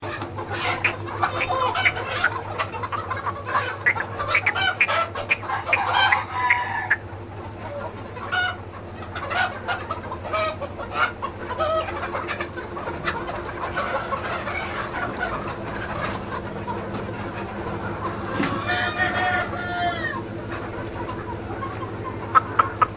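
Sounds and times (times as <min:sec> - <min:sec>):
chickens clucking: 0:00.0 - 0:22.9
rooster crowing: 0:03.9 - 0:07.0, 0:18.7 - 0:20.2.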